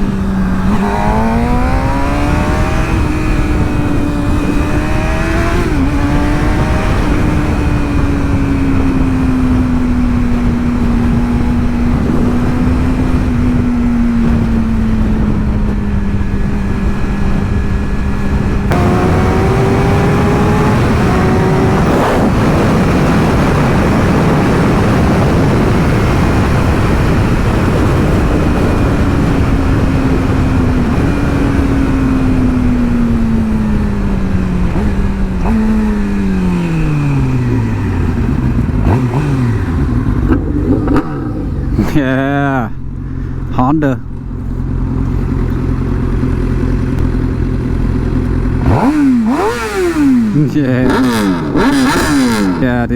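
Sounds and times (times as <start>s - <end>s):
wind on microphone: 0.0s - 42.0s
motorcycle engine cruising: 0.0s - 52.9s.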